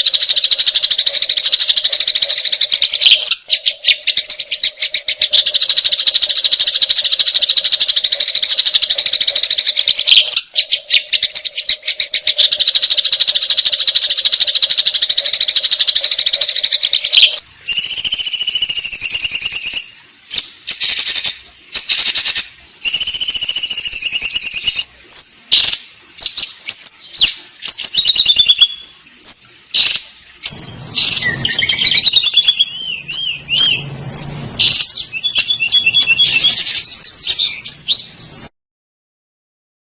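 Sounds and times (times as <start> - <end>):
sparrow chirps: 0.0 - 38.5
sparrows chattering: 27.7 - 38.5
warbling bird notes: 27.7 - 38.5.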